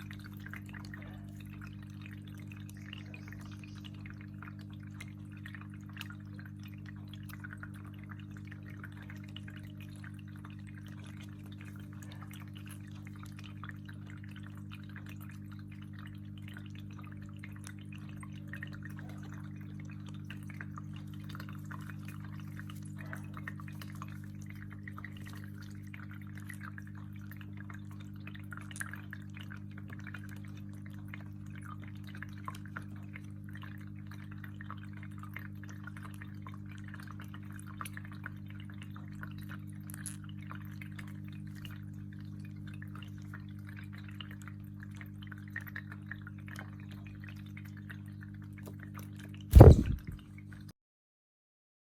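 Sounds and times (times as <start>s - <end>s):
steady low hum: 49.5s - 50.2s.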